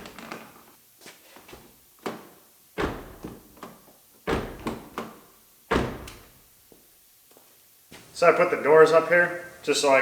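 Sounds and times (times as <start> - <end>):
car door knocks and clunks: 2.1 - 6.4.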